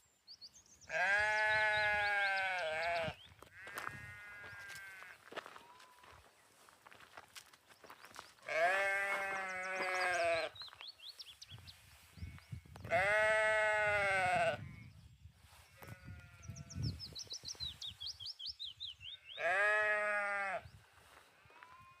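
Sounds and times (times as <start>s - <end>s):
lambs bleating: 0.9s - 6.1s, 8.5s - 10.6s, 12.2s - 14.8s, 19.2s - 20.6s.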